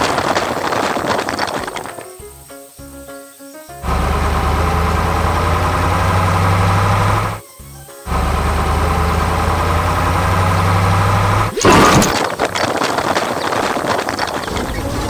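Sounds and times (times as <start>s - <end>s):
loud clatter: 0.0s - 2.1s, 9.8s - 15.0s
heavy machine engine idling: 3.8s - 7.4s, 8.1s - 11.5s.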